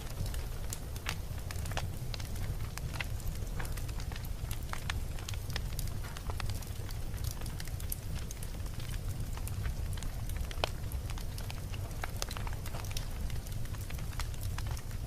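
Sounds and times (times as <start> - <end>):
campfire crackling and popping: 0.0 - 15.0
low rumble of flame: 0.0 - 15.0.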